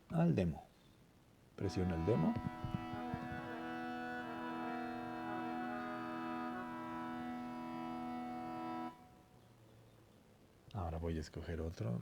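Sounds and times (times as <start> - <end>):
keyboard organ chord: 1.6 - 9.1.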